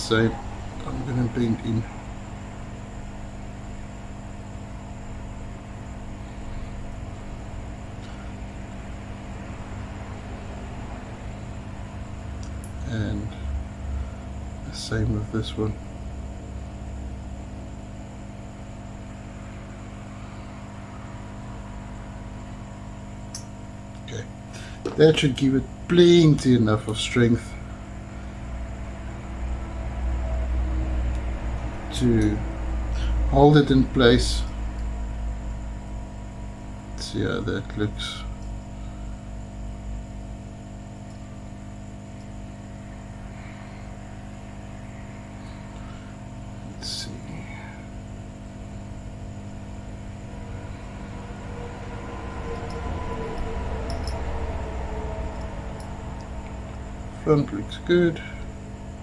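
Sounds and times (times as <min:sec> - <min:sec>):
equipment hum and hiss: 0:00.0 - 0:59.0
low rumble: 0:50.2 - 0:57.7.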